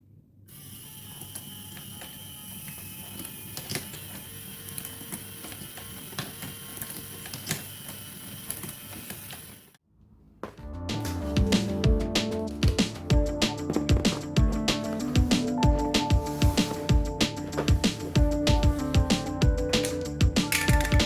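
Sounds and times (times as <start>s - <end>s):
mechanical whir: 0.5s - 9.8s.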